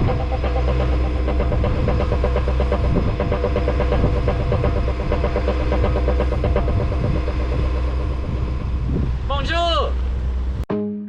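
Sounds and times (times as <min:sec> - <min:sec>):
boat engine humming: 0:00.0 - 0:10.6.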